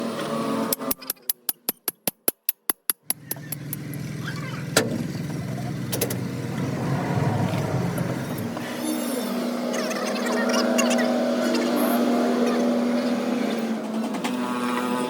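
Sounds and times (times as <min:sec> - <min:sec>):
engine running with low rumble: 0:03.1 - 0:09.6.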